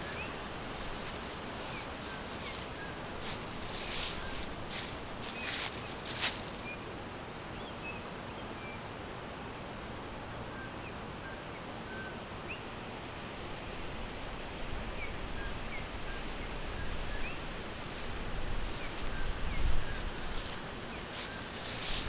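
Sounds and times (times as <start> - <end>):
brief rustles: 0.0 - 6.8
steady background hiss: 0.0 - 22.0.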